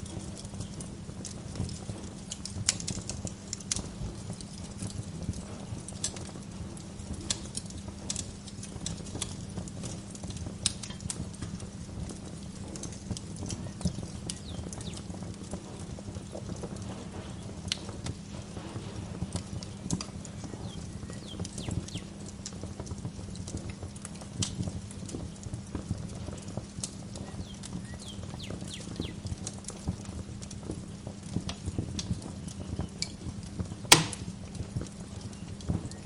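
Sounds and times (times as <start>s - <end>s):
wood fire crackling: 0.0s - 36.0s
birds chirping: 13.4s - 17.6s, 19.4s - 22.3s, 27.1s - 30.3s, 35.2s - 36.0s.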